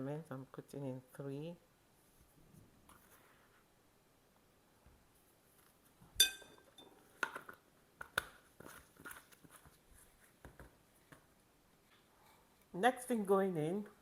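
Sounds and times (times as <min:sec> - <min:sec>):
metal spoon clinking against bowl: 0:06.2 - 0:06.9.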